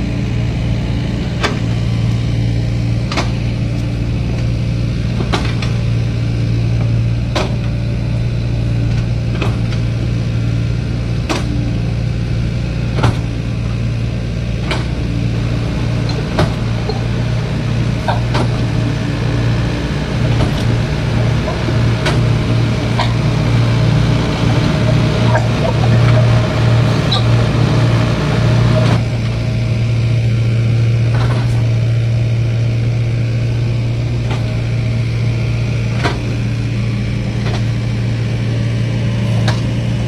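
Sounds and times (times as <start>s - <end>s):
excavator engine humming: 0.0s - 4.0s, 15.0s - 29.9s.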